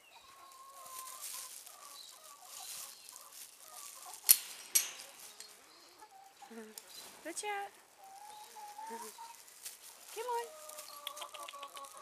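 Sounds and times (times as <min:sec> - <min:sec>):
hens clucking: 0:00.0 - 0:12.0
rustling: 0:00.0 - 0:12.0.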